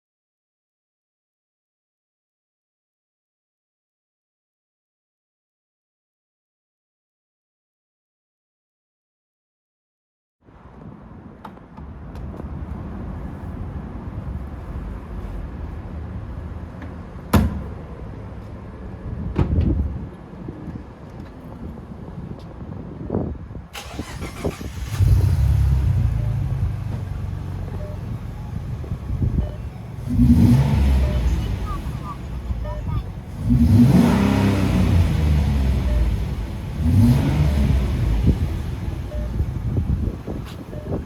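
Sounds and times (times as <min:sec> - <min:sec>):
car engine low rumble: 0:10.5 - 0:41.0.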